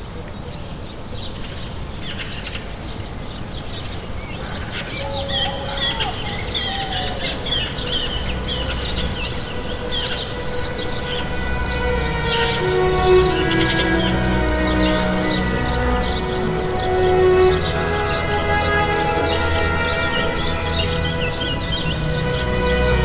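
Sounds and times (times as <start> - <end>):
low background noise: 0.0 - 23.0
small birds twittering: 0.0 - 23.0
music: 4.9 - 23.0.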